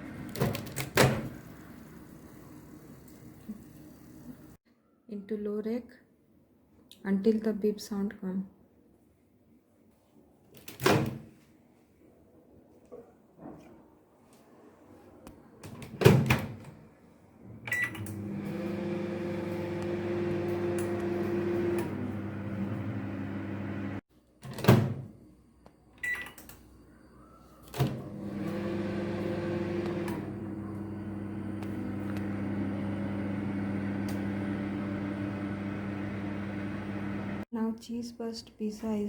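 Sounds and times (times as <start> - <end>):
microwave oven humming: 17.8 - 24.0, 27.9 - 37.4
keypad beep: 26.0 - 26.4.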